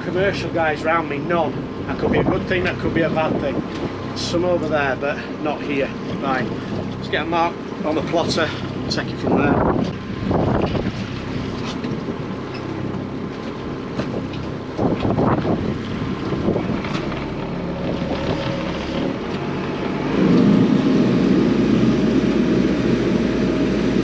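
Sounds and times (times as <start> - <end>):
small boat engine running: 0.0 - 24.0
wind buffeting microphone: 0.0 - 24.0.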